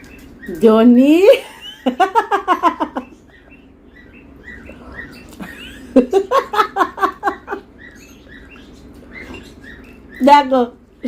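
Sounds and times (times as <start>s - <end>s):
faint bird chirps: 2.7s - 6.5s, 7.1s - 11.0s.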